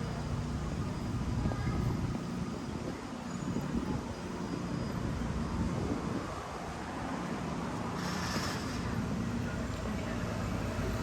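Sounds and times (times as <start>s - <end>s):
low city rumble: 0.0s - 11.0s.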